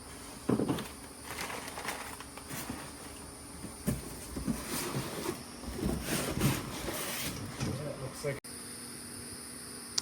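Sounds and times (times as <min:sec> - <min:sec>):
packaging rustling: 0:00.0 - 0:07.2.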